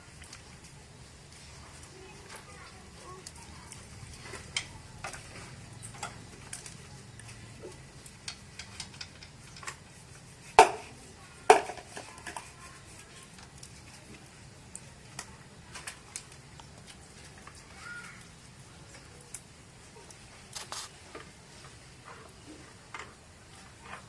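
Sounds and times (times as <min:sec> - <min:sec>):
light clinks and taps: 0:05.8 - 0:09.8.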